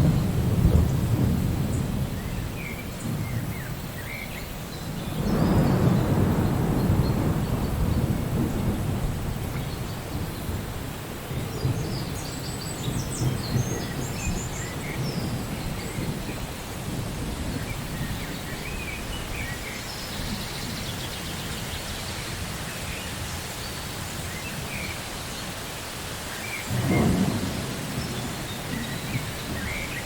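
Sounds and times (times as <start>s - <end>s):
thunder rolling: 0.0s - 3.8s, 5.1s - 12.2s, 26.7s - 30.0s
steady rain: 0.0s - 30.0s.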